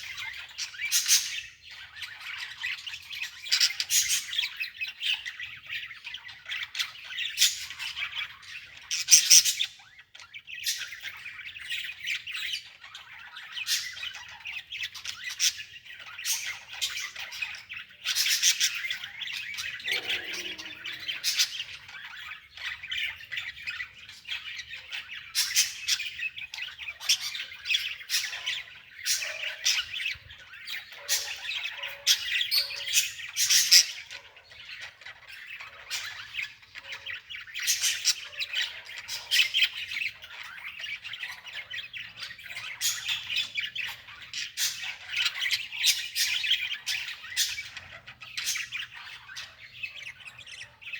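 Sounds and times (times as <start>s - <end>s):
birds squawking and chirping: 0.0s - 50.9s
harsh bird calls: 16.2s - 50.9s.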